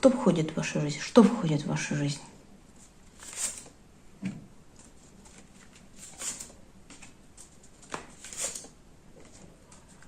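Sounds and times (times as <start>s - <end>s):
cards sliding: 3.1s - 3.7s.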